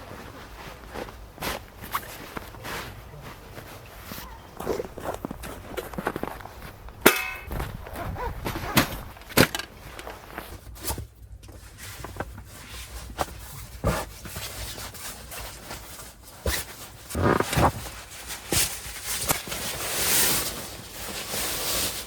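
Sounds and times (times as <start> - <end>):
ringing metallic clang: 7.0 - 7.6.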